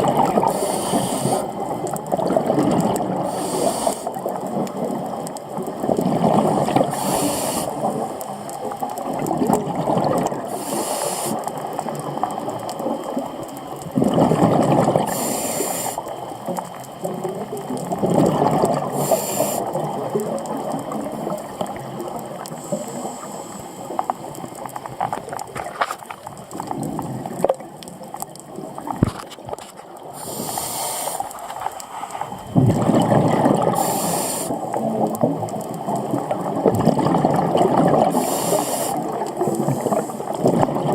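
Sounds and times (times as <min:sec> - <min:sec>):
exhaled bubbles rushing: 0:00.0 - 0:03.3, 0:04.1 - 0:10.6, 0:11.6 - 0:15.4, 0:16.1 - 0:22.4, 0:32.2 - 0:40.9
regulator hissing inhalation: 0:00.4 - 0:01.6, 0:03.3 - 0:04.2, 0:06.9 - 0:07.9, 0:10.5 - 0:11.5, 0:15.1 - 0:16.1, 0:18.9 - 0:19.8, 0:30.2 - 0:32.4, 0:33.7 - 0:34.7, 0:38.1 - 0:40.3.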